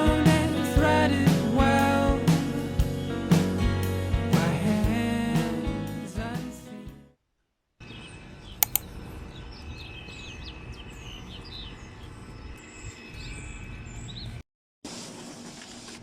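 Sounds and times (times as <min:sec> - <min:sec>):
small birds chirping: 0:07.8 - 0:14.4
sharp clicks: 0:08.6 - 0:08.9.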